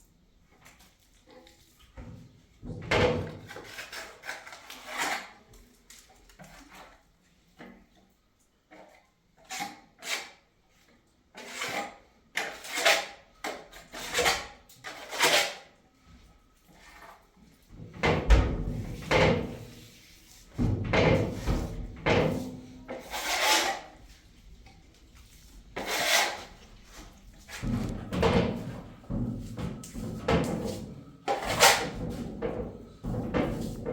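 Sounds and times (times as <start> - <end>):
hard objects knocking and scraping: 20.5 - 23.9, 27.4 - 33.9.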